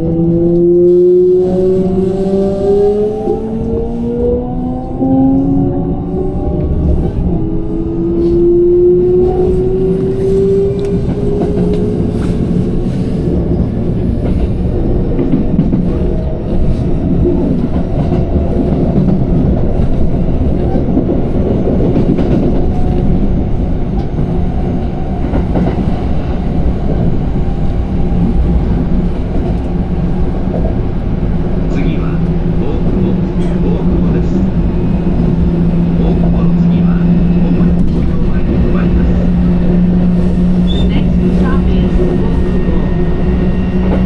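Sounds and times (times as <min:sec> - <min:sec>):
electric train rumbling on rails: 0:00.0 - 0:44.0.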